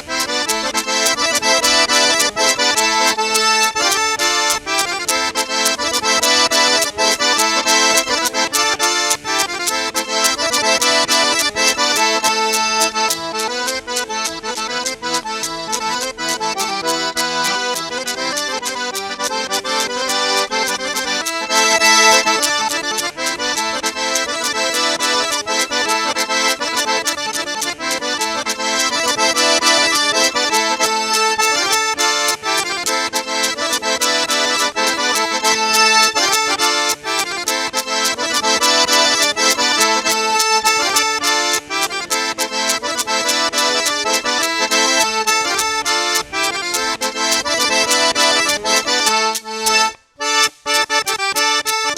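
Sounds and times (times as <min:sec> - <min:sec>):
fast folk dance music: 0:00.0 - 0:51.9.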